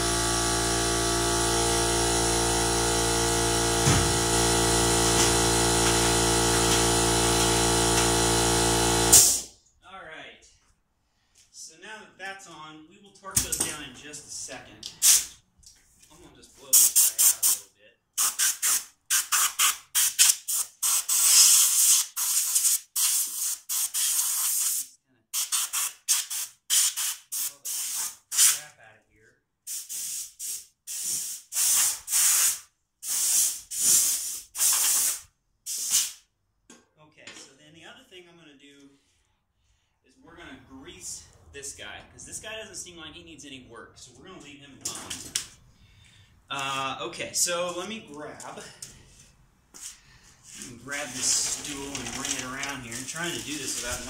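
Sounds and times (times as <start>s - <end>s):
air compressor humming: 0.0s - 9.5s, 49.8s - 54.0s.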